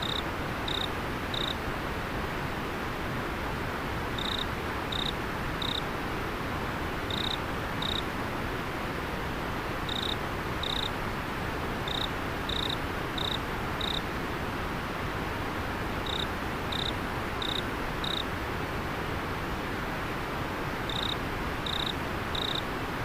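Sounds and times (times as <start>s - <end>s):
insect chirping: 0.0s - 1.6s, 4.2s - 5.8s, 7.1s - 8.0s, 9.9s - 10.9s, 11.9s - 14.0s, 16.0s - 18.2s, 20.9s - 22.6s.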